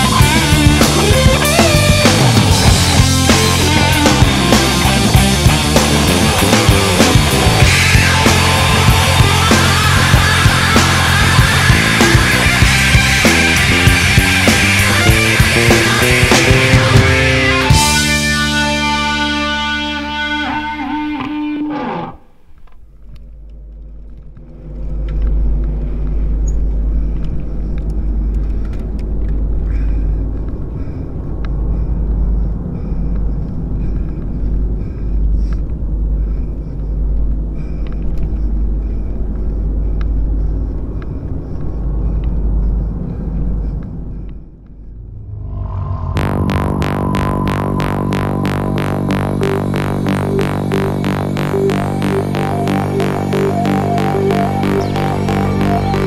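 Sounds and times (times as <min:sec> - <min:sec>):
guitar song: 0:00.0 - 0:22.2, 0:46.2 - 0:56.0
music: 0:00.0 - 0:22.2, 0:45.5 - 0:56.0
bike rattles and clicks: 0:22.7 - 0:30.9.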